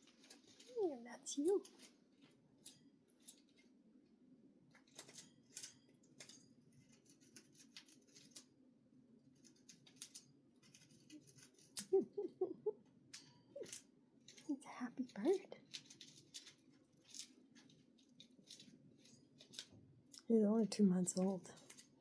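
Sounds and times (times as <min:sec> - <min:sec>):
low steady hum: 0:10.6 - 0:22.0.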